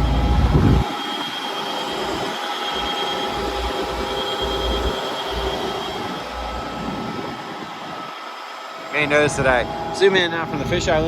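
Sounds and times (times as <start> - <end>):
excavator diesel idling: 0.0 - 0.9
hydraulic pumps hissing and whining: 0.0 - 11.0.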